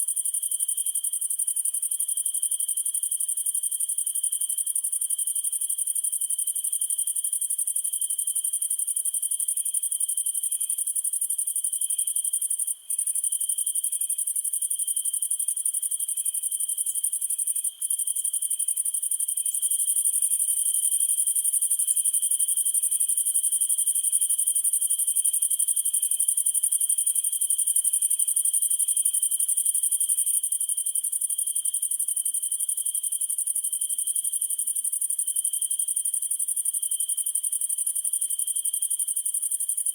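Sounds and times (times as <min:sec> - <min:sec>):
low continuous cricket trill: 0:00.0 - 0:39.9
slow cricket chirp: 0:00.0 - 0:39.9.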